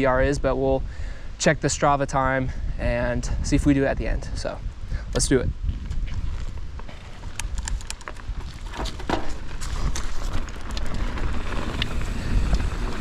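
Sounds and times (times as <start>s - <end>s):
wind on microphone: 2.2s - 13.0s
bike tyres rumbling on dirt: 5.6s - 13.0s
bike clicks and rattles: 5.7s - 13.0s.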